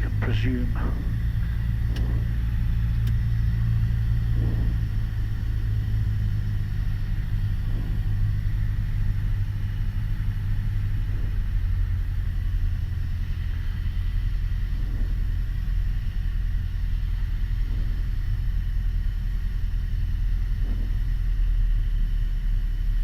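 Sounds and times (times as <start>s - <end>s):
propeller plane engine drone: 0.0s - 23.0s.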